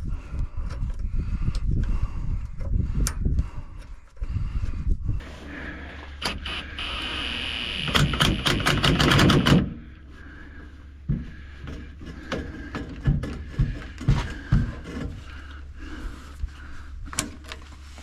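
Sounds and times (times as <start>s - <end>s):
impact wrench hammering: 7.8s - 9.8s.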